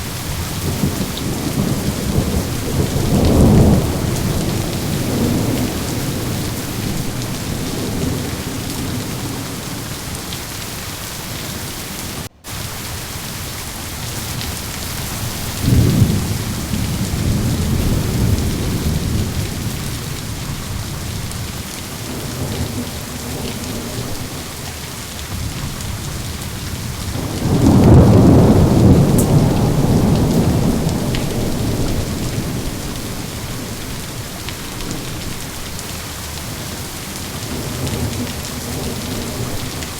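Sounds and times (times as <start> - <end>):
rolling thunder: 0.0 - 10.4, 15.0 - 24.6, 25.3 - 35.6
steady rain: 0.0 - 39.9.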